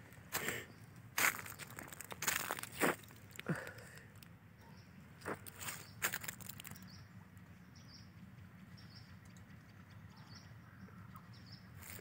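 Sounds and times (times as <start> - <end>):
footstep crunching dry leaves: 0.0 - 4.3, 5.2 - 7.0, 11.8 - 12.0
small bird chirping: 4.6 - 12.0.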